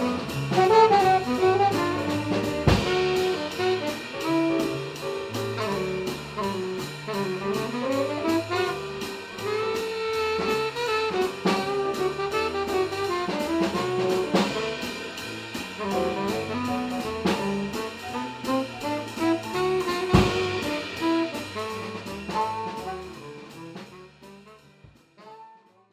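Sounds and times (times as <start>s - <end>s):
stepping bass line: 0.0s - 8.7s, 11.6s - 23.4s
jazz horns: 0.0s - 25.9s.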